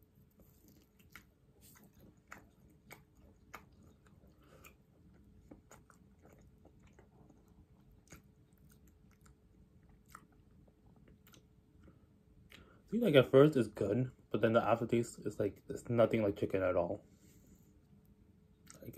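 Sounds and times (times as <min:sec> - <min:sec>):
faint steady hum: 0:00.0 - 0:18.9
person chewing crunchy food: 0:00.2 - 0:11.9.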